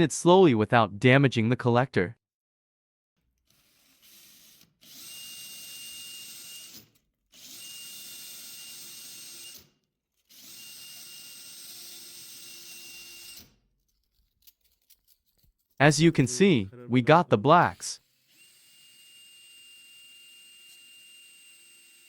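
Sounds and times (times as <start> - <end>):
electric drill spinning: 3.5 - 9.6, 10.2 - 13.5, 18.0 - 22.0.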